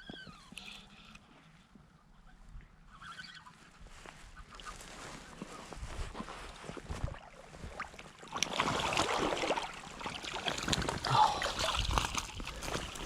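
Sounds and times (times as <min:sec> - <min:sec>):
flowing creek: 0:06.4 - 0:13.0
fish splashing in water: 0:07.2 - 0:13.0.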